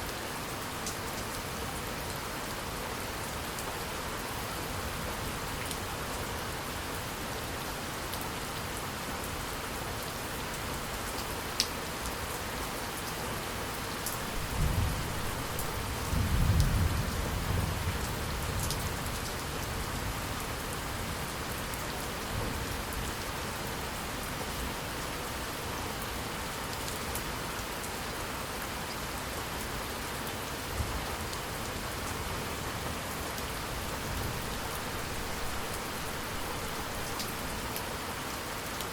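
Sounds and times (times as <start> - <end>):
steady rain falling: 0.0 - 38.9
low roll of thunder: 16.0 - 18.0.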